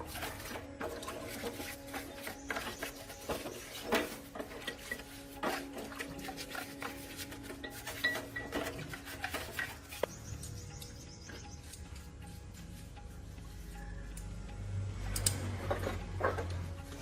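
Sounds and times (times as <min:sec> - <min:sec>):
metal tools clinking: 0:00.0 - 0:10.1.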